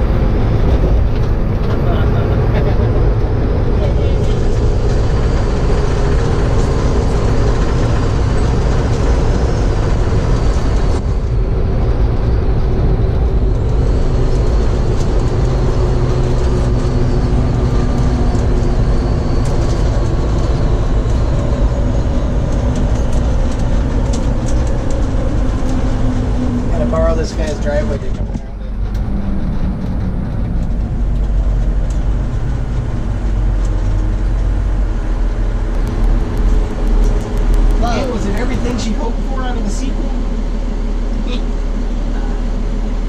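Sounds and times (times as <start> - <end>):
fire truck engine drone: 0.0 - 43.0
road rumble: 0.0 - 43.0
sharp rattling clicks: 35.8 - 39.1.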